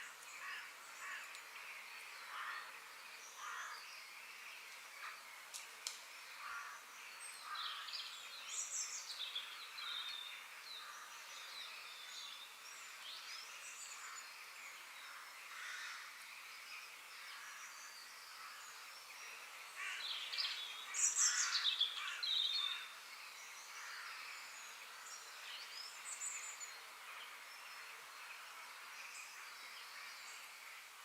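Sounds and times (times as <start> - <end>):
bird chirping song: 0.0 - 31.0
soft forest hiss: 0.0 - 31.0
faint bird calls: 19.7 - 23.0.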